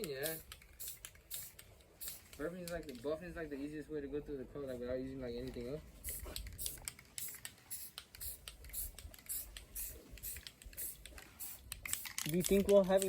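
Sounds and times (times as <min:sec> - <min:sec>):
spray gun clicks: 0:00.0 - 0:03.0, 0:06.1 - 0:13.0
spray gun hissing: 0:00.2 - 0:02.4, 0:06.0 - 0:12.1.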